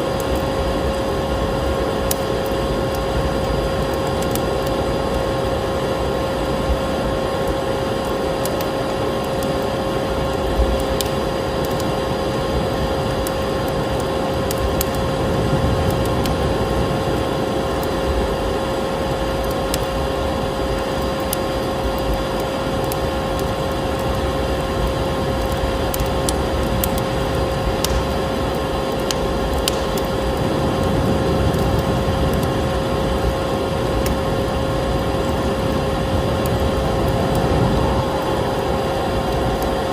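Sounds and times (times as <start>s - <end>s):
wood fire crackling: 0.0s - 39.9s
vacuum cleaner running: 32.6s - 39.9s.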